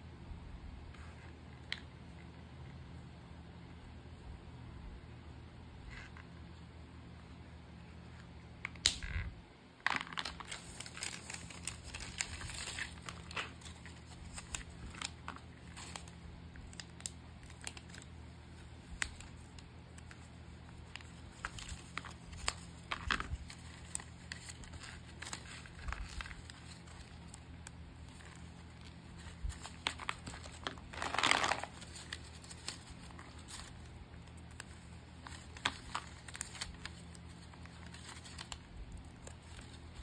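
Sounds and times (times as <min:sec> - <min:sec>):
packaging crinkling and rustling: 0:09.8 - 0:40.0
packaging tearing: 0:09.9 - 0:18.1, 0:18.8 - 0:40.0.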